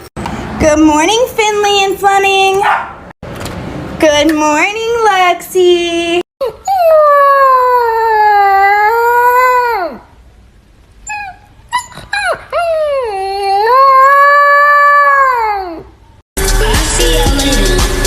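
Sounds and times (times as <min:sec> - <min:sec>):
dog yipping: 0:02.6 - 0:03.0, 0:11.0 - 0:13.6
dog howling: 0:11.1 - 0:15.9
music: 0:16.4 - 0:18.0.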